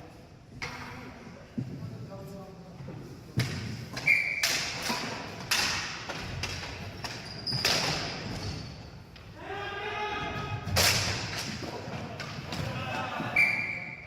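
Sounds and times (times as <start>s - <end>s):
hockey sticks and ball knocking: 3.4s - 8.6s.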